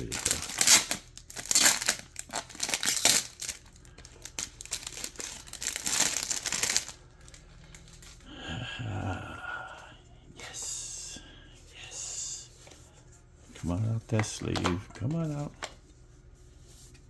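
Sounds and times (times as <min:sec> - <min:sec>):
packaging wrap crinkling and tearing: 0:00.0 - 0:08.3.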